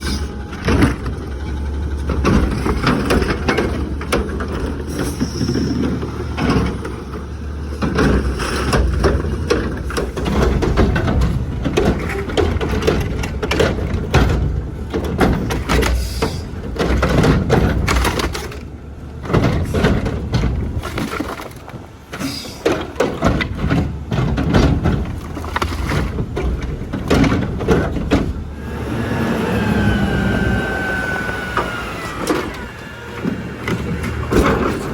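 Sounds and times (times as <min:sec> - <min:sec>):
garbage truck engine running: 0:00.0 - 0:34.9
trash clattering and crunching: 0:00.0 - 0:34.9.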